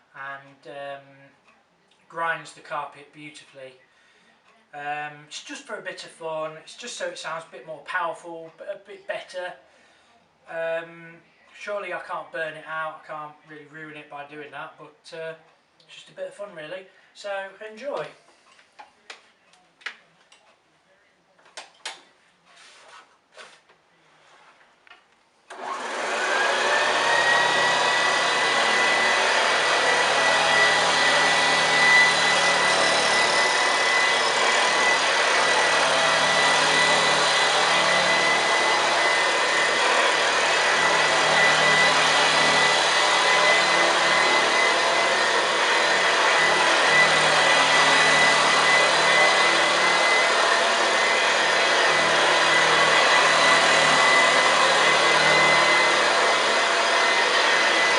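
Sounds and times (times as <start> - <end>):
vacuum cleaner motor whine: 25.5 - 57.9.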